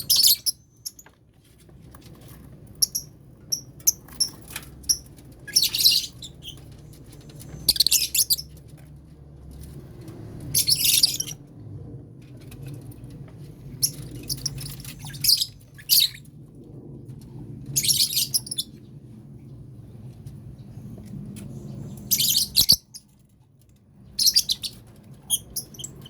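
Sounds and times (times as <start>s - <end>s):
lovebirds chattering shrilly: 7.5s - 8.5s.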